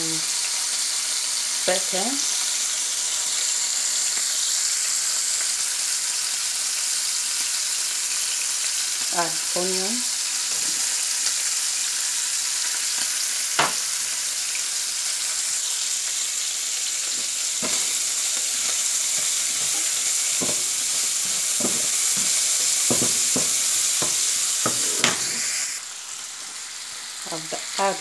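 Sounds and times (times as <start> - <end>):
bacon and onion sizzling: 0.0 - 28.0
spatula scraping a pan: 17.1 - 25.7.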